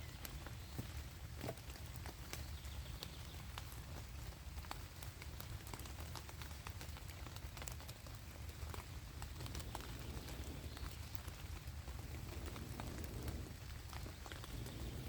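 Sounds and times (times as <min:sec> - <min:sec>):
raindrops ticking and tapping: 0:00.0 - 0:15.0
low rumble: 0:11.6 - 0:15.0.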